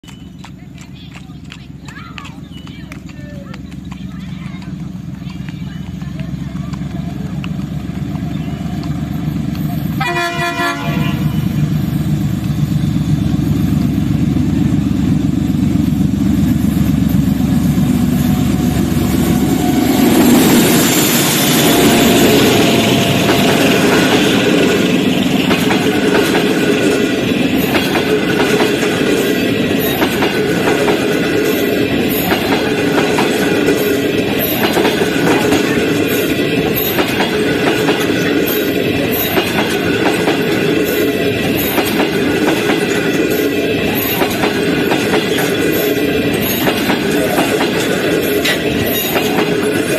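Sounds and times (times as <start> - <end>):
locomotive engine low rumble: 0.0 - 49.9
train wheels clickety-clack: 0.0 - 49.9
diesel locomotive horn blast: 9.9 - 11.7.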